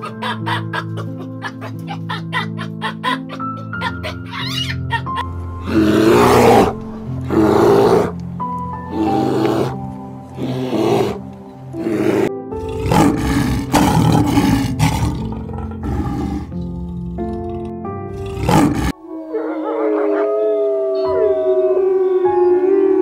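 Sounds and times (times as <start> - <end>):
background music: 0.0 - 23.0
lion roaring: 5.6 - 8.2, 8.9 - 9.8, 10.4 - 11.2, 11.8 - 21.1
wolf howling: 5.6 - 8.2, 8.9 - 11.2, 11.8 - 17.4, 18.2 - 23.0
bear growling: 5.6 - 21.2.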